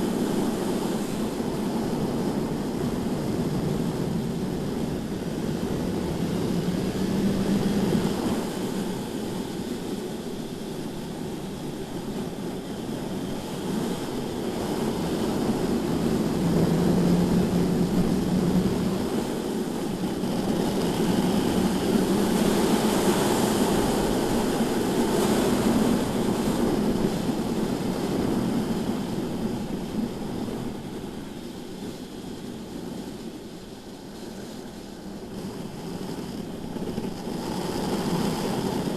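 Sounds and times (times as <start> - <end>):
wind rush: 0.0 - 38.9
motorcycle engine at speed: 1.2 - 10.2, 12.8 - 31.0, 35.0 - 38.9.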